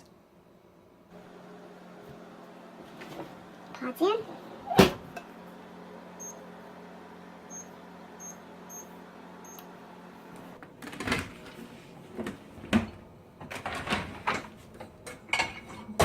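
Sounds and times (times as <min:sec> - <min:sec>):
dishwasher hum: 0:01.1 - 0:16.0
dishwasher high beeps: 0:06.2 - 0:06.4, 0:07.5 - 0:09.6
dishwasher door and racks clattering: 0:10.7 - 0:16.0.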